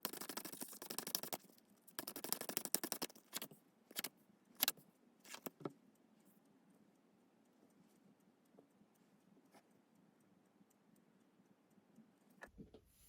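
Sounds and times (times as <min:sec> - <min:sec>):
cards shuffling: 0:05.3 - 0:05.6.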